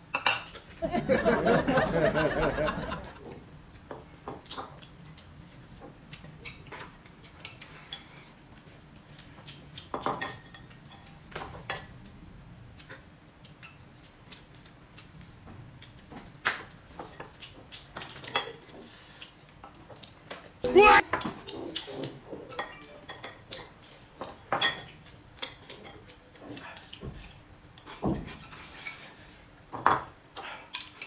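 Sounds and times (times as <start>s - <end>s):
utensils clinking on dishes: 22.0s - 26.2s.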